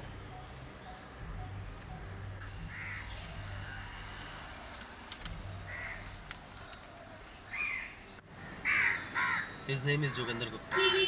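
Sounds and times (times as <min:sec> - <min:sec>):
low steady hum: 0:00.0 - 0:06.3
crows cawing: 0:02.7 - 0:04.1, 0:05.7 - 0:06.1, 0:07.5 - 0:08.0, 0:08.6 - 0:10.4.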